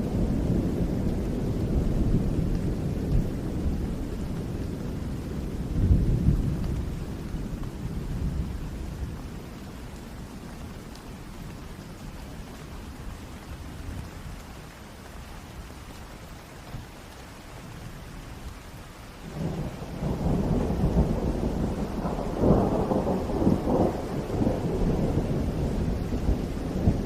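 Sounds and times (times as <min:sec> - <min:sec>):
steady rain: 0:00.0 - 0:27.0
thunder rolling: 0:19.3 - 0:27.0.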